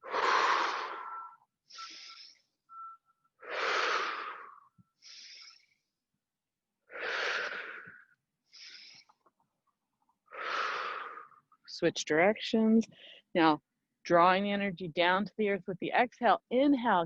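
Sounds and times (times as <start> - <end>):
person breathing deeply: 0.0 - 2.6, 3.4 - 5.9, 6.9 - 9.3, 10.2 - 11.5.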